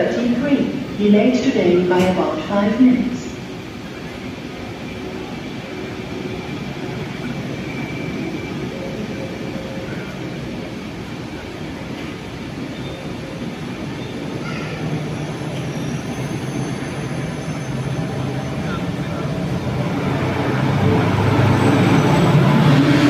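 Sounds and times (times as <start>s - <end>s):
electric locomotive hum: 0.0s - 23.0s
train coaches rolling past: 0.0s - 23.0s.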